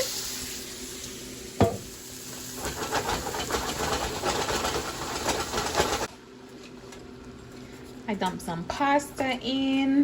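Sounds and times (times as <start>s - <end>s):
sauce sizzling in a pan: 0.0s - 4.1s
knock against pan: 1.6s - 1.9s.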